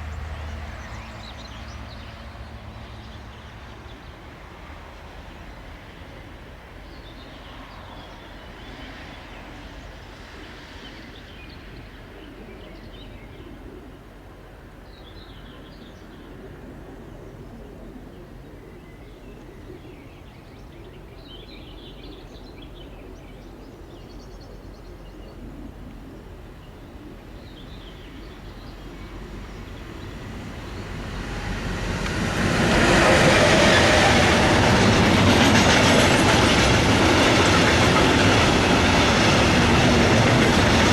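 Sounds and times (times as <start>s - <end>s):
train passing: 0.0s - 12.1s, 26.3s - 40.9s.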